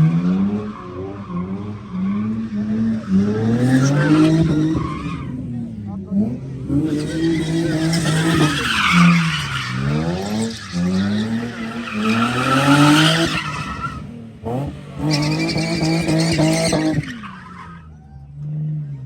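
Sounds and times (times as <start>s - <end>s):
car engine at high revs: 0.0s - 19.0s.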